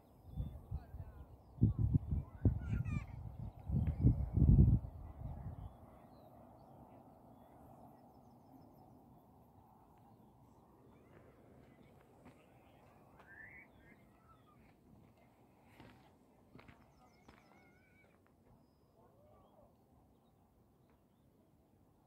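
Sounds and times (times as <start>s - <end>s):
bird chirps: 11.8s - 14.7s.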